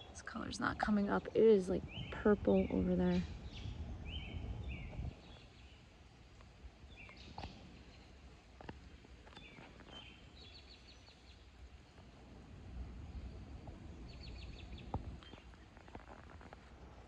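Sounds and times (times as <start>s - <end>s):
faint birds chirping: 0.0s - 17.0s
low outdoor background: 0.0s - 17.0s.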